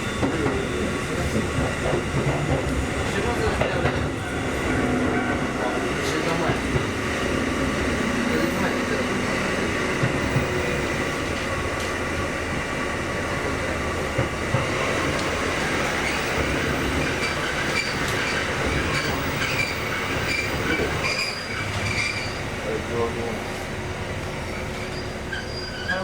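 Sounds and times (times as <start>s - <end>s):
train wheel and rail rumble: 0.0s - 26.0s
high-pitched wheel squeal: 17.1s - 22.4s, 24.8s - 26.0s.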